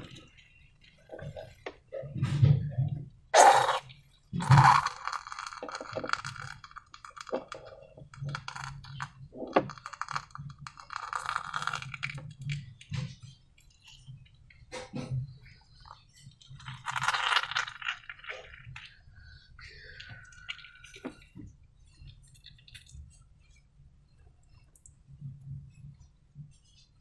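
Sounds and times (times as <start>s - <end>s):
slime squishing and crackling: 3.4s - 13.0s, 16.5s - 19.0s.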